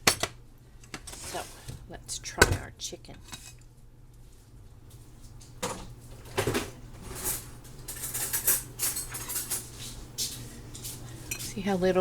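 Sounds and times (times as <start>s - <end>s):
cutlery clinking on a plate: 7.1s - 11.5s.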